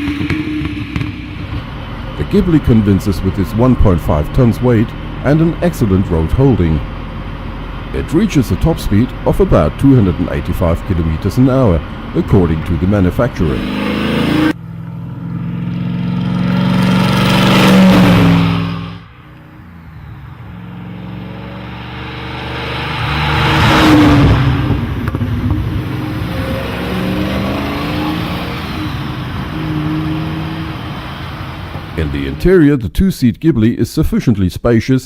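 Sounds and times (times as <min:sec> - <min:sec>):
car engine driving by: 0:00.0 - 0:32.4.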